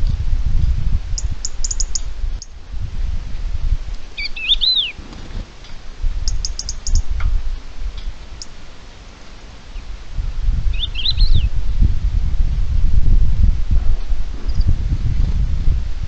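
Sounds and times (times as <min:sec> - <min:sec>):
wind rumble on microphone: 0:00.0 - 0:08.8, 0:09.5 - 0:16.0
birds whistling: 0:01.2 - 0:02.5, 0:04.2 - 0:05.0, 0:06.2 - 0:07.1, 0:10.7 - 0:11.5
high bird ticks: 0:01.2 - 0:02.6, 0:05.6 - 0:07.3, 0:08.0 - 0:08.6.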